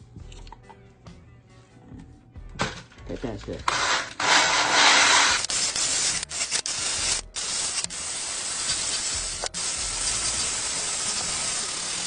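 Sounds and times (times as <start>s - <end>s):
wire brush scouring metal: 3.7s - 12.0s.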